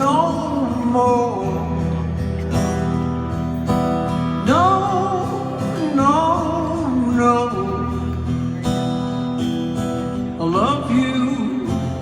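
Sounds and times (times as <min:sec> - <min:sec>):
man singing wordless notes: 0:00.0 - 0:02.2, 0:04.3 - 0:08.3, 0:10.2 - 0:12.0
acoustic guitar strumming: 0:00.0 - 0:12.0.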